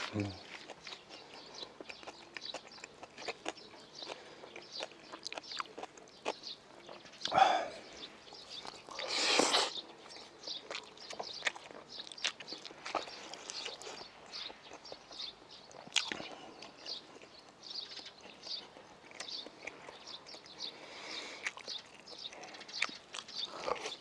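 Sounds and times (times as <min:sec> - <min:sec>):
close-miked chewing: 0:00.0 - 0:24.0
wet mouth clicks and smacks: 0:15.7 - 0:16.2.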